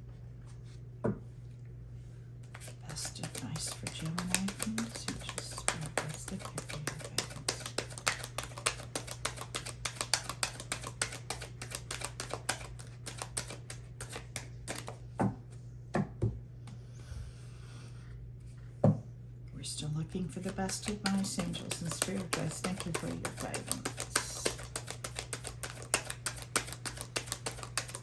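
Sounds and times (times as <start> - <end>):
steady low hum: 0.0 - 28.0
cards being shuffled: 2.4 - 15.0, 20.4 - 28.0.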